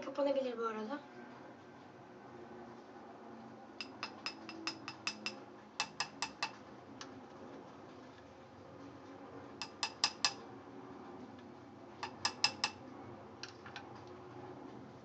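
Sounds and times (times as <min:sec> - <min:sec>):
utensil clicking against container: 0:03.8 - 0:06.6, 0:09.6 - 0:10.4, 0:12.0 - 0:12.8.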